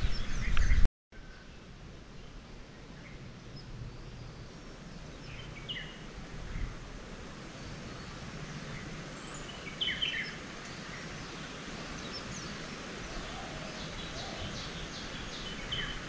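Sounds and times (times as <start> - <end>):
birds chirping: 0.0 - 16.0
outdoor background hum: 0.0 - 16.0.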